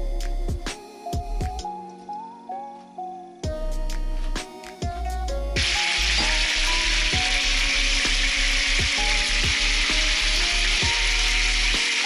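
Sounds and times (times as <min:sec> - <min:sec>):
chicken sizzling in hot oil: 0:05.6 - 0:12.0.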